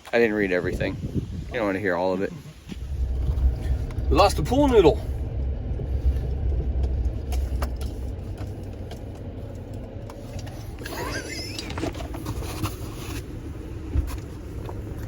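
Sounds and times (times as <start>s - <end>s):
wind buffeting microphone: 0.2s - 11.0s.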